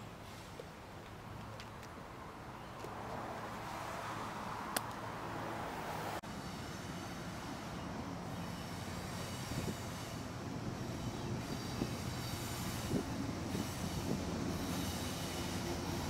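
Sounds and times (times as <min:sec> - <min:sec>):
steady rushing noise: 0:03.6 - 0:16.0
diesel locomotives rumbling: 0:06.2 - 0:16.0
high wheel squeal: 0:06.4 - 0:16.0.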